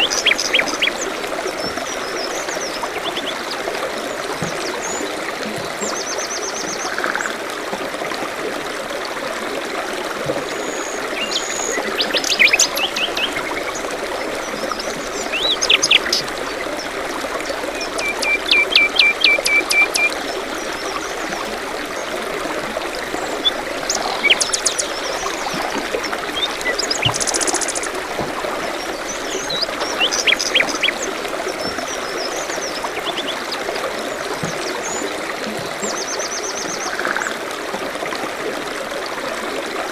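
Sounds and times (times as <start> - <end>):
stream trickling: 0.0 - 39.9
songbirds chirping: 23.0 - 37.0.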